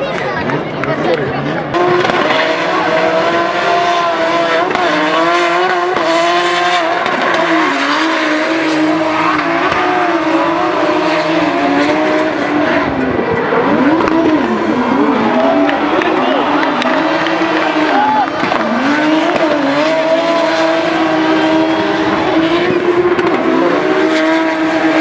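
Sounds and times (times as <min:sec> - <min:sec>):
car engines at high revs: 0:00.5 - 0:25.0
tyres squealing: 0:05.5 - 0:11.4.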